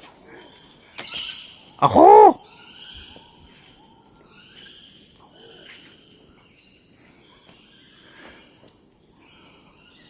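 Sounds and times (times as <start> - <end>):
crickets chirping: 0.0 - 10.0
faint short calls: 1.8 - 2.4.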